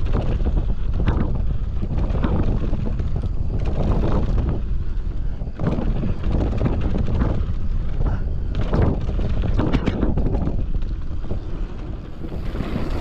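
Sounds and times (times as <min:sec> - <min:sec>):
bike knocking and clattering: 0:00.0 - 0:13.0
wind rushing over microphone: 0:00.0 - 0:13.0
tyres rumbling on dirt: 0:08.6 - 0:13.0.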